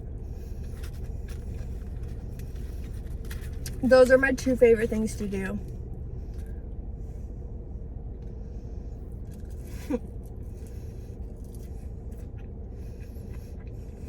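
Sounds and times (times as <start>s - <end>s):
car cabin hum: 0.0s - 14.0s
person chewing food: 9.1s - 14.0s.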